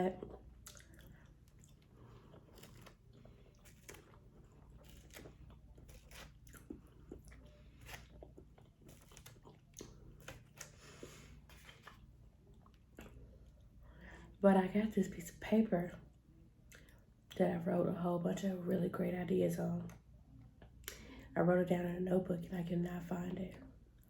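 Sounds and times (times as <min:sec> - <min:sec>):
steady low hum: 0:00.0 - 0:24.0
chewing and wet mouth clicks: 0:00.1 - 0:07.4, 0:16.7 - 0:17.0.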